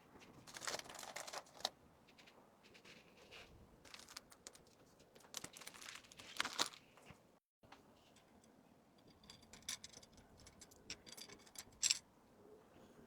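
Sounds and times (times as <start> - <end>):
plastic wrapping rustling: 0.4 - 1.7, 3.9 - 7.0.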